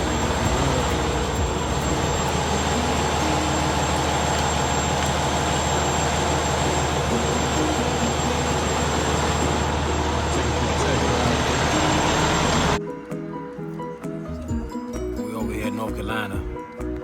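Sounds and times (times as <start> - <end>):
truck engine drone: 0.0 - 12.8.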